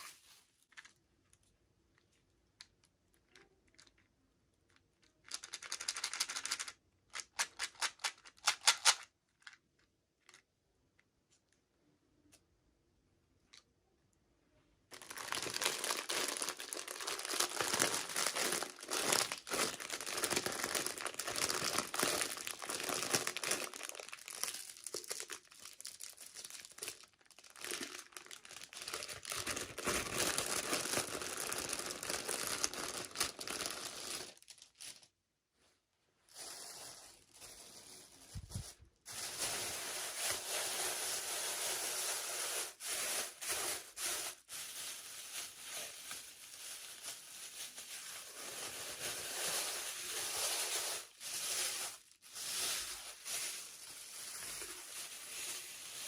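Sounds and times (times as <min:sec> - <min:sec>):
packaging crinkling and tearing: 0:14.9 - 0:35.1, 0:39.1 - 0:56.0.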